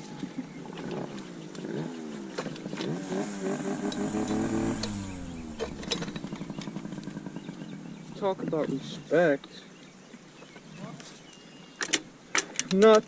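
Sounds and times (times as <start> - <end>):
pit bike engine revving: 0.3 - 8.2.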